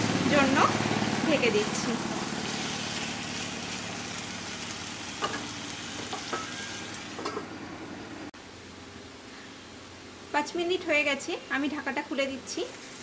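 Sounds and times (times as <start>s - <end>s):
food sizzling in a pan: 0.0s - 7.4s, 10.4s - 13.0s
glass lid placed on pan: 5.2s - 7.5s.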